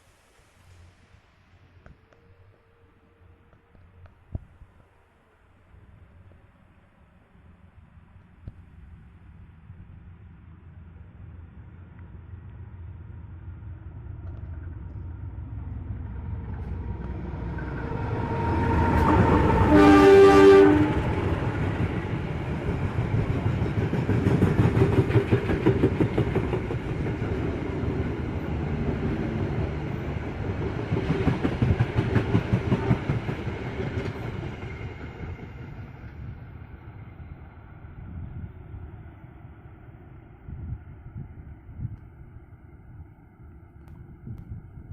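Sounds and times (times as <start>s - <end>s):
train horn: 16.6s - 21.7s
train wheels clattering over rails: 21.0s - 29.4s, 30.4s - 35.5s.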